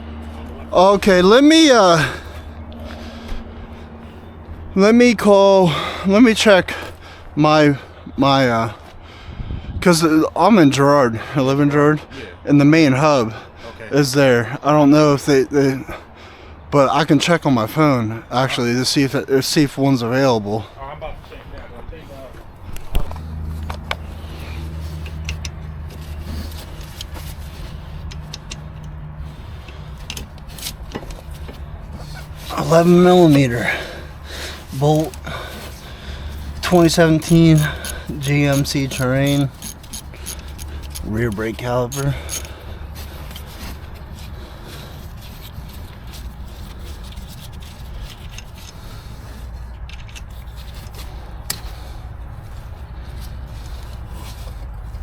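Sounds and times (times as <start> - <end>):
steady low rumble: 0.0 - 10.4, 17.6 - 55.0
vehicle engine idling: 0.0 - 55.0
light clicks of tools: 22.7 - 29.0, 34.7 - 44.4, 45.0 - 51.8
metal parts scraping and rubbing: 23.4 - 55.0.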